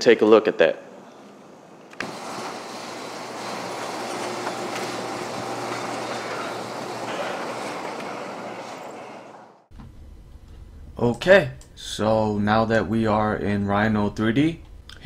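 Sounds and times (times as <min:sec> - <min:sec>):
rattling mechanical running noise: 0:02.0 - 0:09.7.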